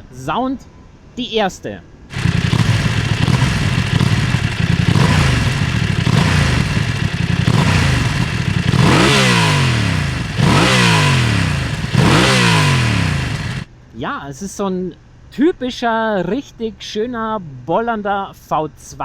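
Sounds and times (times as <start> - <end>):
motorcycle engine revving: 2.1 - 13.7.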